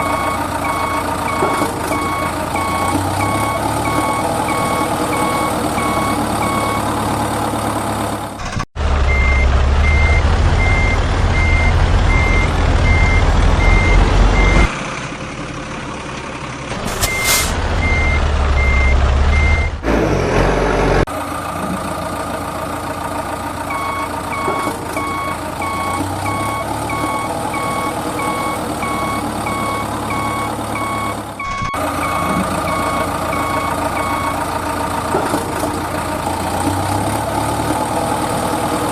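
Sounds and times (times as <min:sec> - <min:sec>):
truck reversing alarm beeping: 0:00.0 - 0:07.3, 0:08.4 - 0:14.7, 0:16.9 - 0:19.8, 0:23.6 - 0:35.0
diesel engine running: 0:00.0 - 0:38.9
short hiss: 0:16.8 - 0:17.6.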